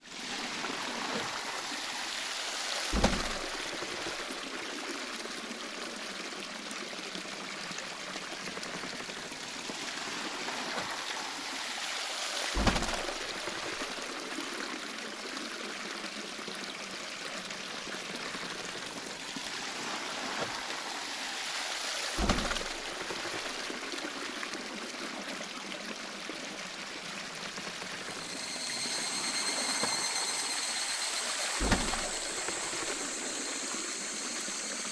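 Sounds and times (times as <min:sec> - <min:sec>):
water splashing at waterwheel: 0:00.0 - 0:34.9
low thump: 0:03.0 - 0:03.8, 0:12.6 - 0:13.2, 0:22.2 - 0:22.8, 0:31.6 - 0:33.1.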